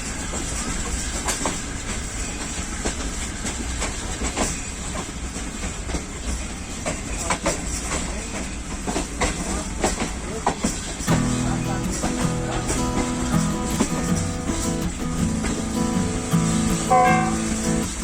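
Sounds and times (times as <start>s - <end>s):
train wheels rumbling on rail: 0.0s - 18.0s
wheels clacking over rail joints: 0.3s - 18.0s.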